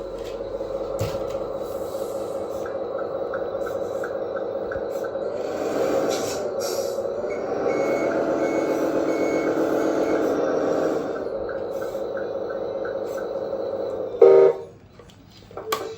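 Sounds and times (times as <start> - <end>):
simulated truck engine running: 0.0 - 15.9
reversing beeper: 7.0 - 11.2, 14.0 - 14.8.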